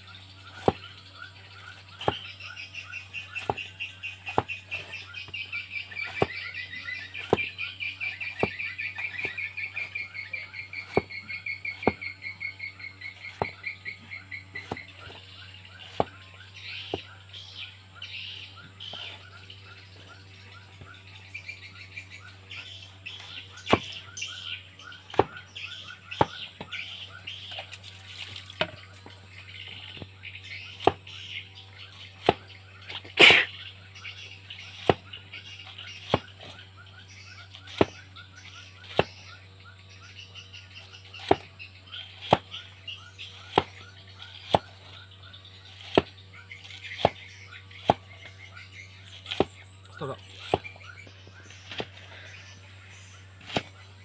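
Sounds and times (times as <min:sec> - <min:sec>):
low steady hum: 0:00.0 - 0:54.0
high chirping: 0:00.1 - 0:54.0.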